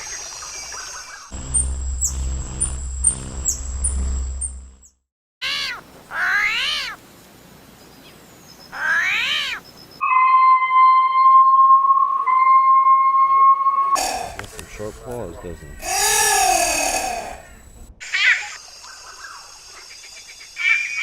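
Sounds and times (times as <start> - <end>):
low rumble: 1.3 - 4.9
high chirps: 1.3 - 5.8
cat meowing: 5.4 - 7.0, 8.8 - 9.6
high whistle-like tone: 10.0 - 14.0.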